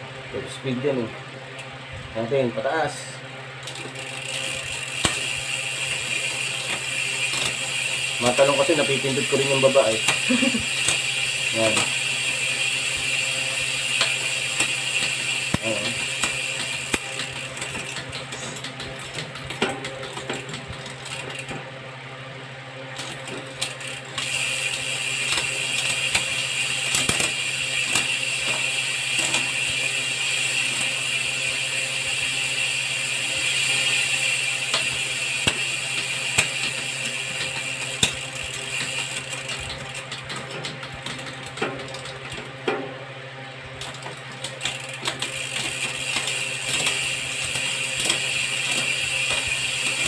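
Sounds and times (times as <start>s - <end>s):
bicycle chain ratcheting clicks: 3.6s - 21.6s, 22.9s - 42.8s, 43.8s - 50.0s.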